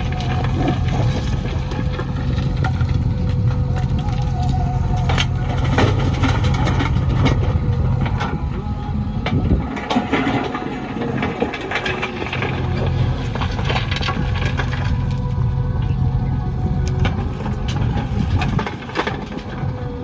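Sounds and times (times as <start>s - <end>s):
diesel engine drone: 0.0s - 20.0s
knocks and clatter: 5.0s - 20.0s.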